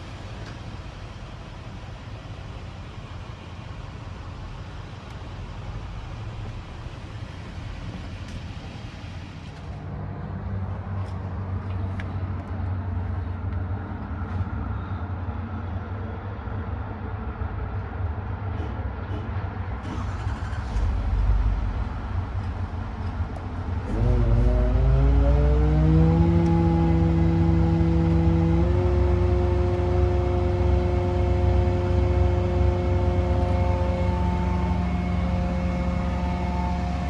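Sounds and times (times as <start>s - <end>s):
engine low rumble: 0.0s - 37.0s
rising pitched tone: 23.9s - 37.0s.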